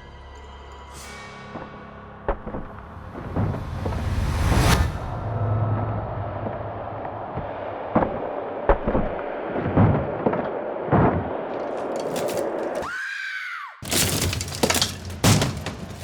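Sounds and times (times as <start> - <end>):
low rumble: 3.0 - 7.9
wood cracking and breaking: 11.5 - 13.0, 13.8 - 16.0.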